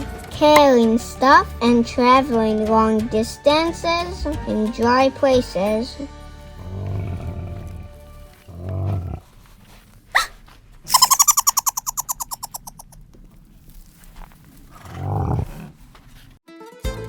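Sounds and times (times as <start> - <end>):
camel groaning: 6.4 - 10.3, 14.2 - 16.4
fast rattling trill: 10.9 - 13.0
sharp rising squeak: 10.9 - 13.0.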